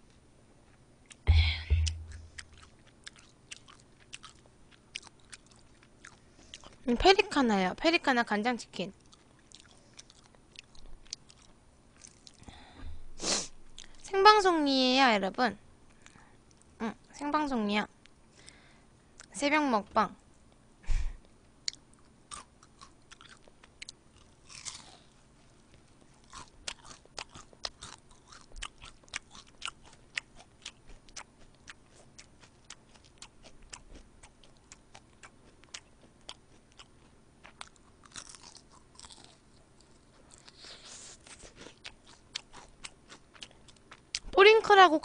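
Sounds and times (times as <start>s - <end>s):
crunchy chewing: 1.8s - 6.9s, 8.9s - 12.5s, 21.6s - 44.3s.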